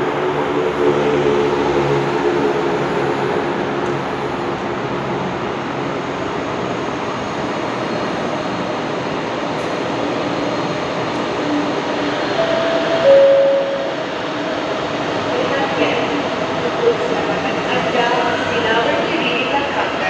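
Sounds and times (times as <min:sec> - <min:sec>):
train passing with rushing wheels: 0:00.0 - 0:20.0
short steady tones: 0:12.4 - 0:14.0.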